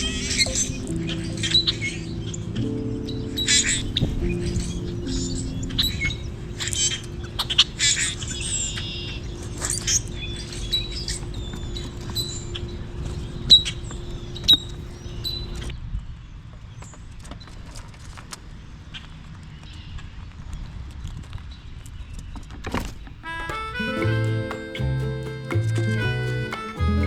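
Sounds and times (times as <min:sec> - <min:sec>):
birds chirping: 0:23.2 - 0:27.0.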